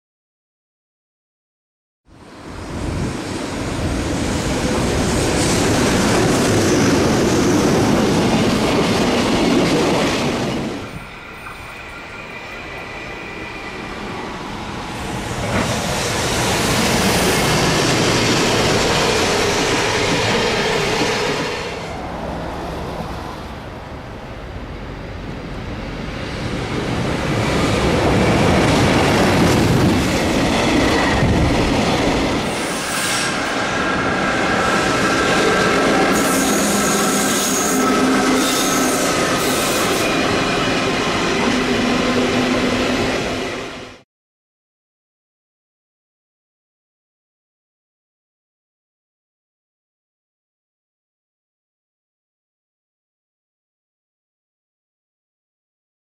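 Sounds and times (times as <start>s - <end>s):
freight train passing: 2.1s - 44.0s.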